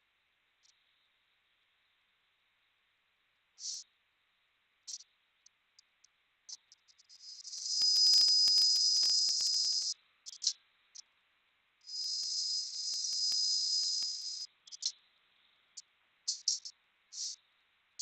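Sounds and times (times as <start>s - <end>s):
air hiss with whistle: 7.4s - 9.9s, 11.9s - 14.4s
sharp clicks: 7.6s - 9.9s, 11.9s - 14.4s.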